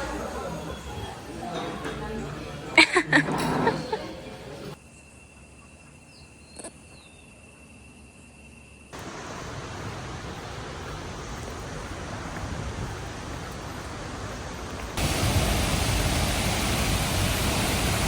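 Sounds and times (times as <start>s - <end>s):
high insect drone: 4.8s - 11.7s
waterfall rushing: 9.0s - 18.0s.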